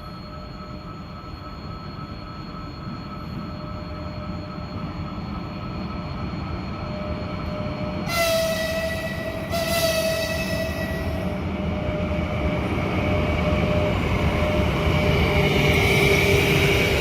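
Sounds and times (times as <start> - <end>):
train rumbling: 0.0 - 17.0
train whine: 0.0 - 17.0
train horn blast: 8.1 - 11.2.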